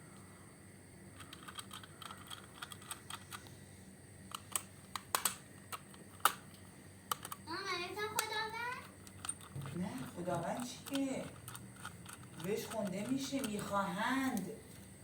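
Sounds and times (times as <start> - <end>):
faint steady hum: 0.0 - 15.0
small clicks and taps: 4.3 - 7.4, 8.1 - 14.8.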